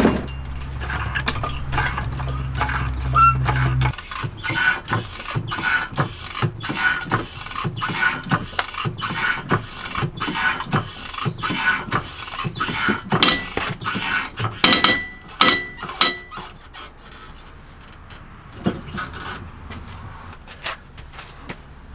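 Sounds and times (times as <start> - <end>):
short metallic ring: 0.0 - 4.0.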